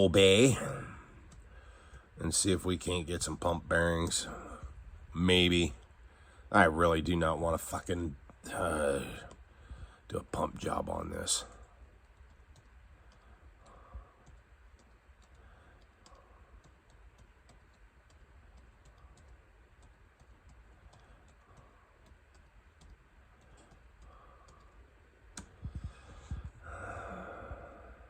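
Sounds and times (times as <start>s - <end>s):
keyboard typing clicks: 12.0s - 25.8s.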